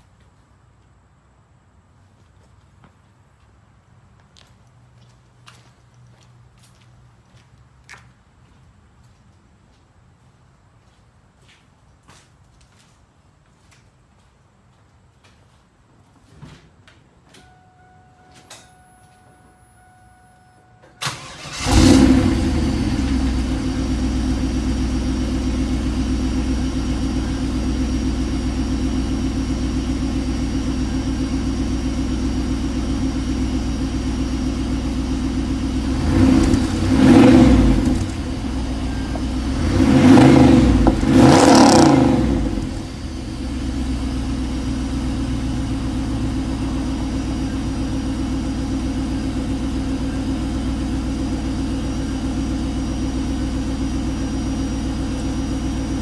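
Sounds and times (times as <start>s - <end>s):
car engine starting and idling: 17.4s - 56.0s
engine revs blipped: 19.4s - 56.0s.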